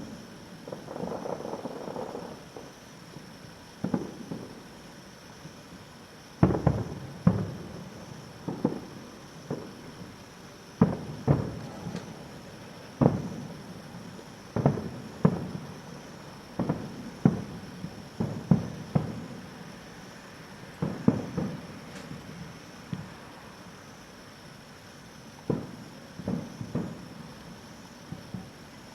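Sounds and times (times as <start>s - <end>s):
firework shells booming: 0.6s - 2.8s, 6.4s - 10.0s, 10.8s - 12.4s, 13.0s - 19.4s, 20.8s - 22.4s, 25.5s - 27.1s.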